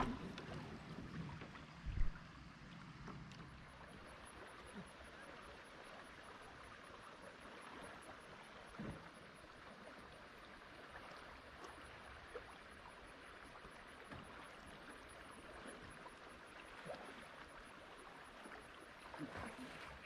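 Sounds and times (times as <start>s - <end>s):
river water rushing over rocks: 0.0s - 0.3s.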